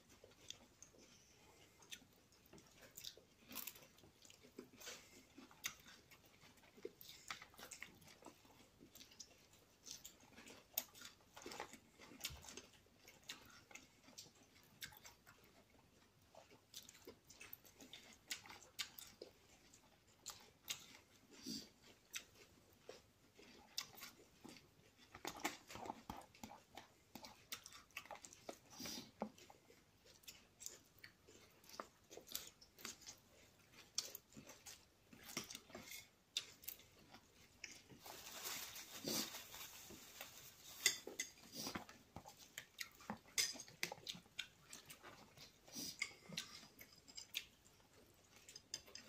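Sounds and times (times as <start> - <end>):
person chewing salad: 0.0 - 49.0
fork scraping glass bowl: 40.8 - 41.4.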